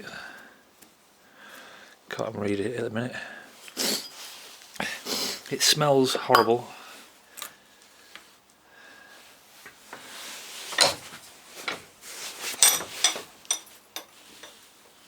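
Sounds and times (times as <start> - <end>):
metal parts clicking and rubbing: 10.7 - 11.0, 12.5 - 14.6.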